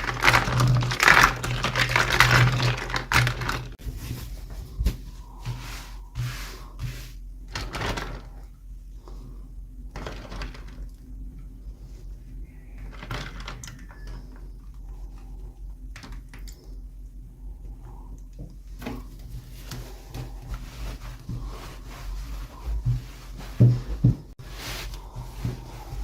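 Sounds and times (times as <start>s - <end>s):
packaging crinkling: 0.0s - 4.2s.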